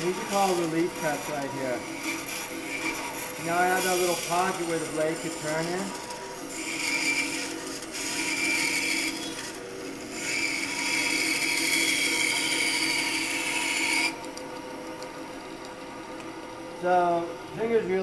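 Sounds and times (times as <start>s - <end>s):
band saw cutting wood: 0.0s - 14.4s
saw motor humming: 0.0s - 18.0s.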